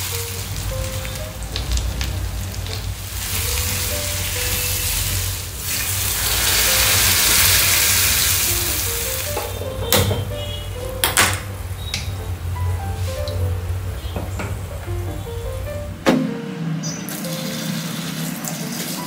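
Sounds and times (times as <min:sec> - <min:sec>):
food sizzling in a pan: 0:00.0 - 0:09.6, 0:17.1 - 0:19.0
water hissing in hot pan: 0:00.0 - 0:09.6, 0:17.1 - 0:19.0
sharp knock: 0:16.0 - 0:16.5.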